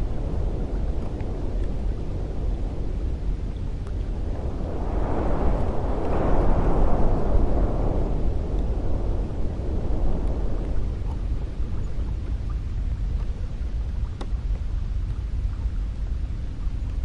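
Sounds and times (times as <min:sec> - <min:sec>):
wind blowing: 0:00.0 - 0:16.9.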